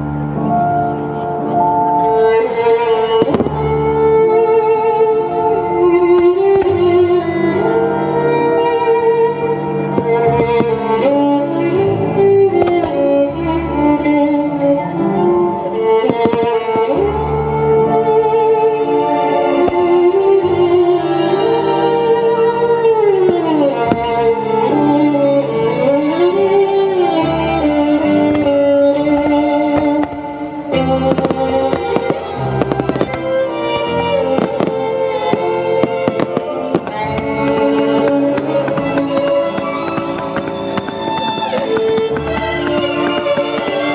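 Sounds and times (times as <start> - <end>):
classical string music: 0.0 - 43.9
fireworks bangs and crackles: 2.0 - 4.7, 9.8 - 11.1, 12.6 - 13.1, 15.5 - 17.0, 19.2 - 20.2, 27.6 - 43.9.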